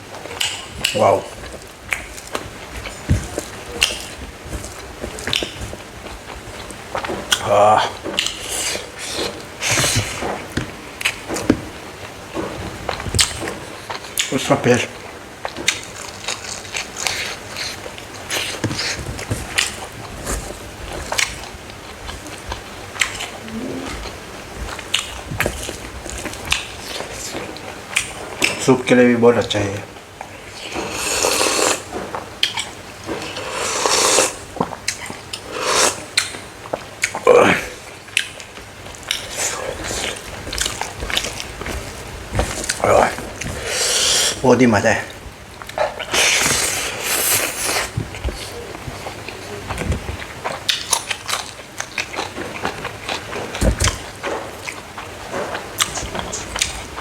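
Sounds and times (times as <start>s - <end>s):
crunchy chewing: 0.1s - 28.6s, 30.0s - 57.0s
person slurping soup: 23.3s - 24.2s, 30.8s - 31.8s, 33.4s - 34.4s.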